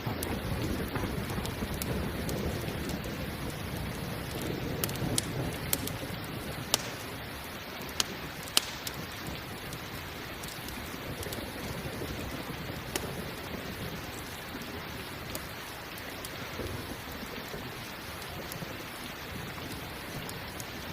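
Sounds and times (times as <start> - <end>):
campfire crackling and popping: 0.0 - 20.9
steady rain: 0.0 - 20.9.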